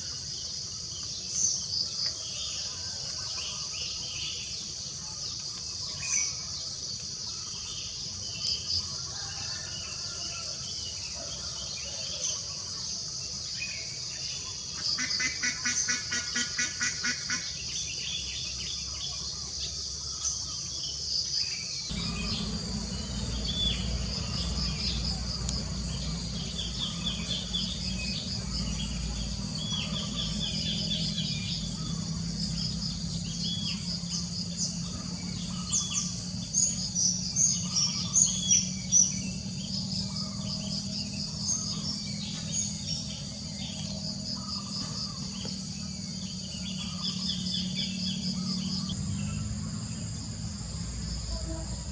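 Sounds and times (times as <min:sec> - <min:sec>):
insects chirping chorus: 0:00.0 - 0:51.9
birds chirping: 0:13.4 - 0:51.9
low steady hum: 0:21.9 - 0:51.9.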